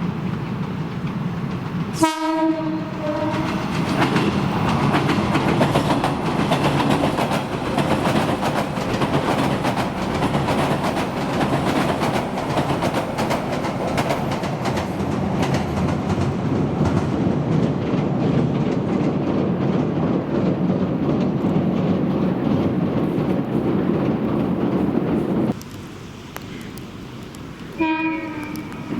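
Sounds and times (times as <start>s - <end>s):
train wheels clacking over rail joints: 0.0s - 25.7s
train rumble: 0.0s - 28.9s
train hiss: 25.1s - 28.9s.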